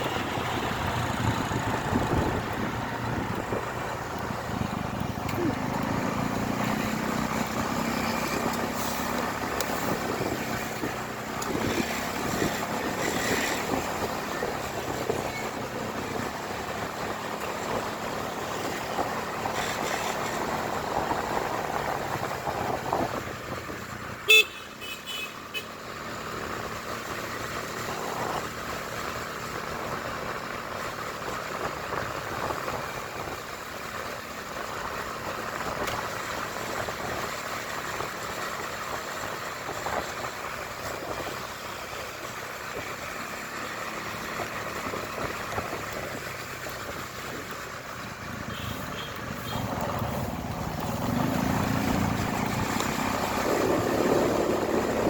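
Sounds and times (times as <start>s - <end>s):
motorcycle road and motor noise: 0.0s - 55.0s.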